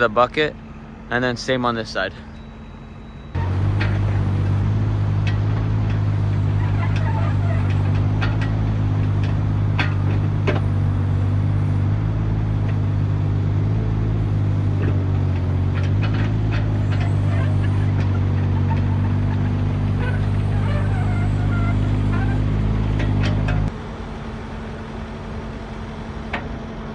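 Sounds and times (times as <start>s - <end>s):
diesel engine running: 0.0s - 26.9s
sharp metallic clicks and knocks: 3.4s - 21.2s, 21.8s - 23.7s.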